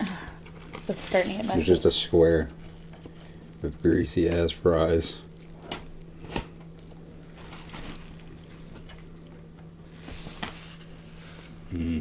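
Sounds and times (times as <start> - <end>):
low steady hum: 0.0 - 12.0
wet chewing sounds: 1.6 - 4.5, 5.2 - 10.0.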